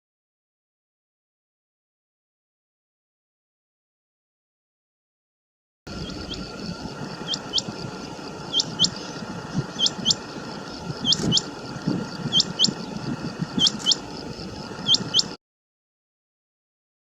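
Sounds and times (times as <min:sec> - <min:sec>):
low background hiss: 0:05.9 - 0:15.4
quail calling: 0:05.9 - 0:15.4.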